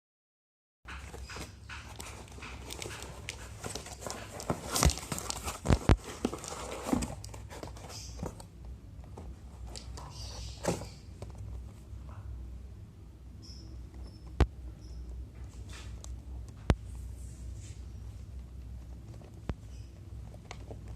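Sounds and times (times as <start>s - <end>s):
packaging clicks and rustles: 0.9s - 8.5s.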